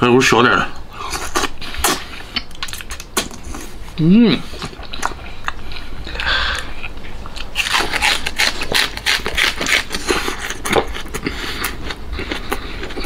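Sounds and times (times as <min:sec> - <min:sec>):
chewing and lip-smacking: 0:04.5 - 0:13.0.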